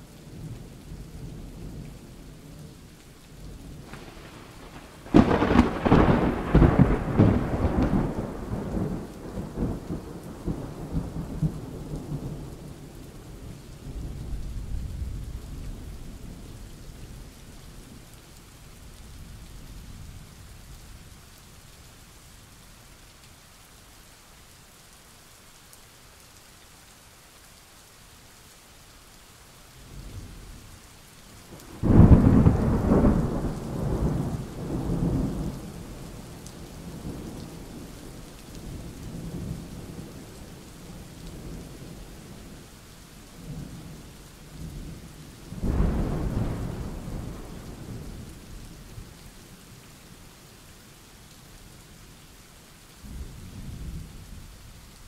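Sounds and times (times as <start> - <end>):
rain hissing: 0.0 - 55.0
thunder rumbling: 3.7 - 16.3, 31.5 - 40.6, 44.6 - 48.4.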